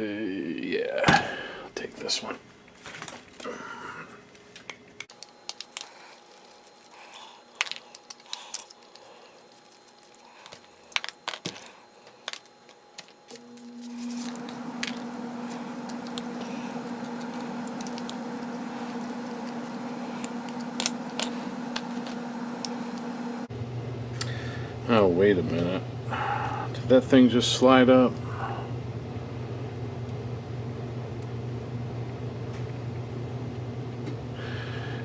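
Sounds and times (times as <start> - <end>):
electric motor hum with whine: 5.1 - 24.8.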